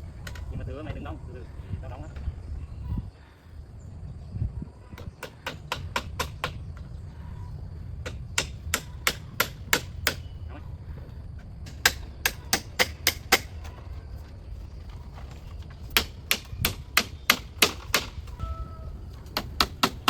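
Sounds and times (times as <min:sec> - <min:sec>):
hammer blows: 0:16.0 - 0:20.0.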